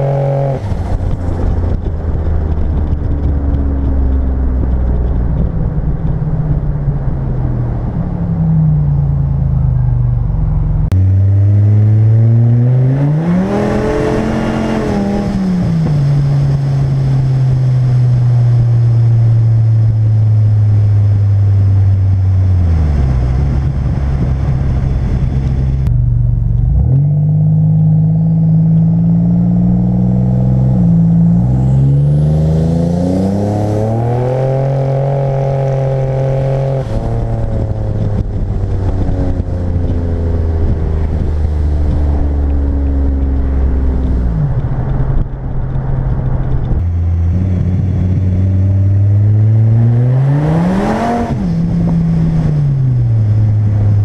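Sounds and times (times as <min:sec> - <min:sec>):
car engine revving: 0:00.0 - 0:07.2, 0:08.7 - 0:54.0.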